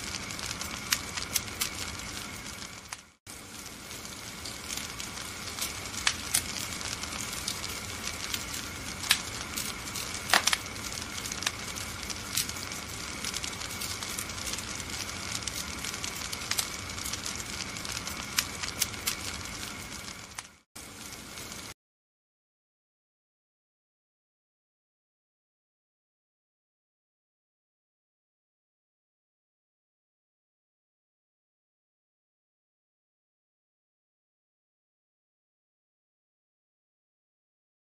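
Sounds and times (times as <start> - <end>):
wood fire crackling: 0.0 - 21.8.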